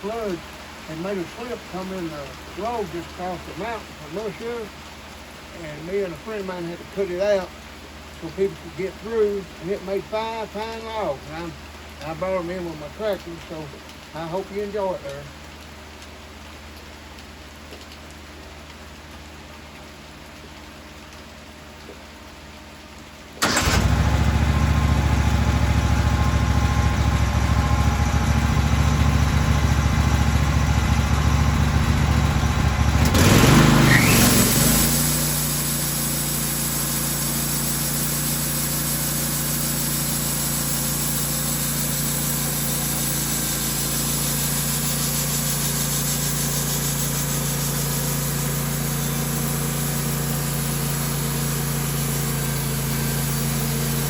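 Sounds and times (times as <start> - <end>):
engine running and revving: 23.5 - 54.0.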